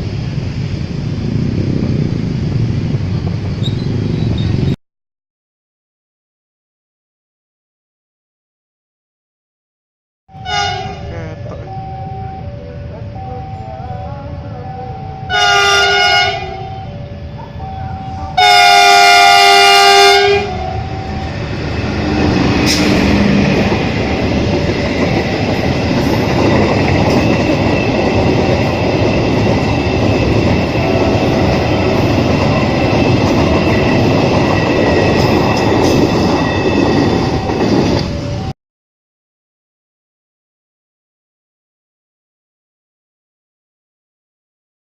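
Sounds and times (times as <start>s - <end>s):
train rumble and wheel clatter: 0.0s - 4.8s, 10.4s - 38.5s
locomotive horn blasts: 10.3s - 12.4s, 15.2s - 17.0s, 17.8s - 21.4s.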